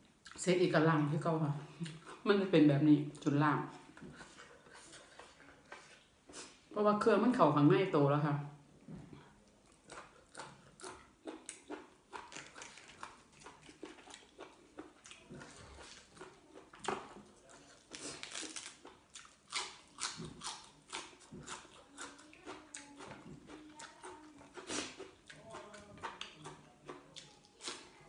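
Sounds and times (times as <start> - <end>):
person chewing crunchy food: 9.4 - 28.0.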